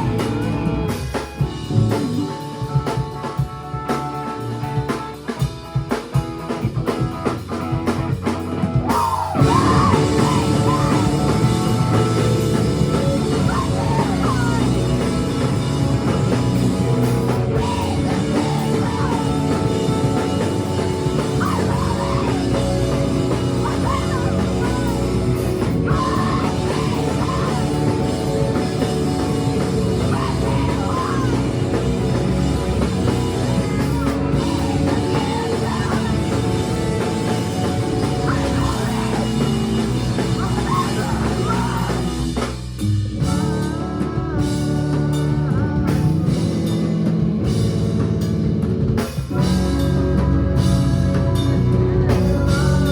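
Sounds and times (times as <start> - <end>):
live rock band playing: 0.0 - 52.9
person singing: 9.0 - 16.2, 17.5 - 42.5, 43.2 - 46.5, 49.7 - 52.9.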